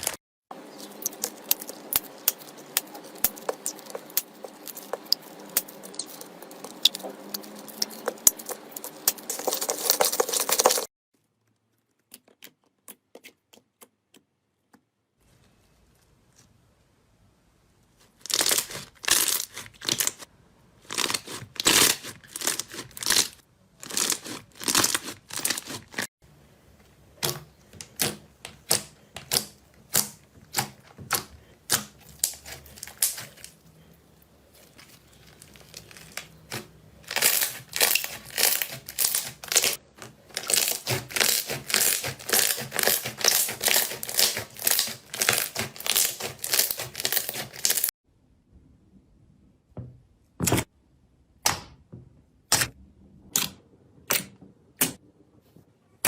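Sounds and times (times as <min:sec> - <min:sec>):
slime squelching: 0:00.0 - 0:14.7, 0:18.0 - 0:26.1, 0:27.0 - 0:47.9.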